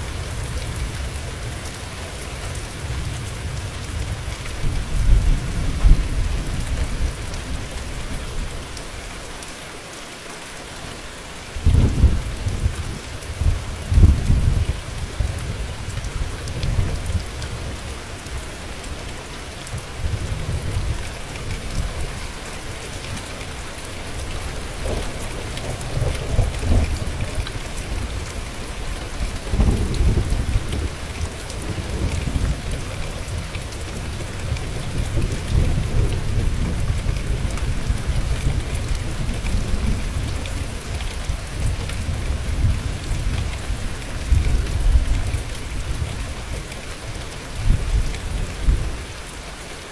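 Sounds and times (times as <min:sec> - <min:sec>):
heavy rain falling: 0:00.0 - 0:49.9
rolling thunder: 0:11.6 - 0:17.9, 0:24.0 - 0:46.2.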